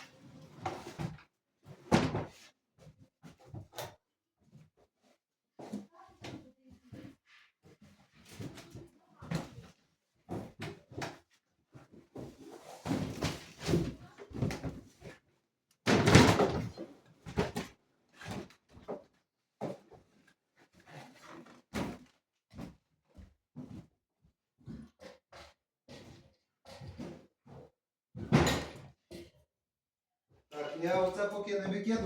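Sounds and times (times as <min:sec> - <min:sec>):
objects knocking and clattering: 0:15.9 - 0:17.7, 0:28.2 - 0:29.0.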